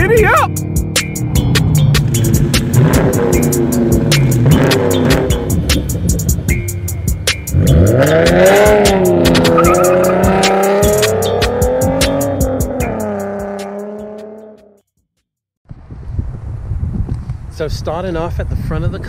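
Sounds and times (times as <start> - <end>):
intro music: 0.0 - 14.8
car engine revving: 0.6 - 14.7
tire squeal: 9.3 - 11.1.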